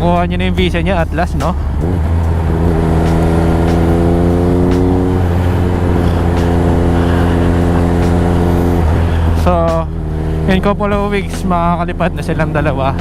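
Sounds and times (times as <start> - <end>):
motorcycle engine at steady revs: 1.6 - 11.4.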